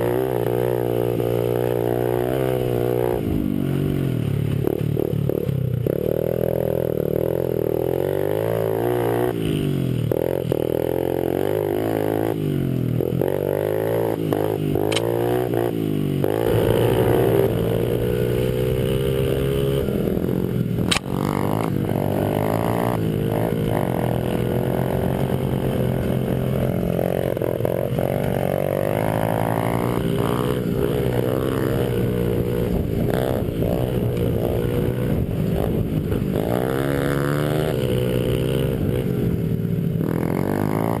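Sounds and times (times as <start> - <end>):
small motorbike engines revving: 0.0 - 41.0
sharp click: 14.9 - 15.1, 20.9 - 21.1.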